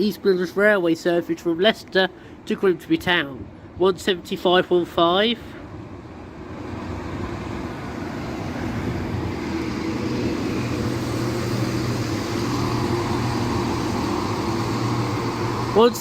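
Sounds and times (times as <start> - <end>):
diesel train engines humming: 0.0 - 16.0.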